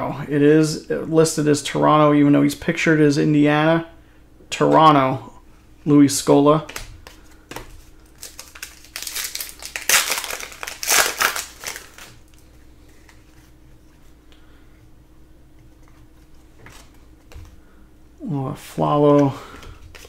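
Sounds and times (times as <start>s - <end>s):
foil wrapper crinkling: 7.1s - 13.4s.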